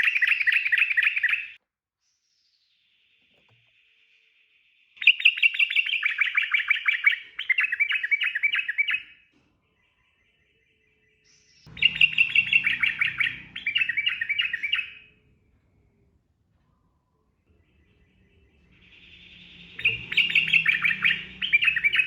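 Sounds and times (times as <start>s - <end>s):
low rumble: 11.7s - 22.0s.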